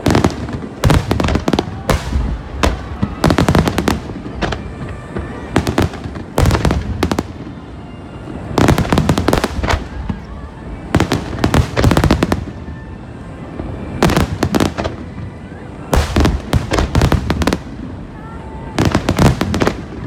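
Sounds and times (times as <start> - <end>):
fireworks bursting with sharp bangs: 0.0 - 20.0.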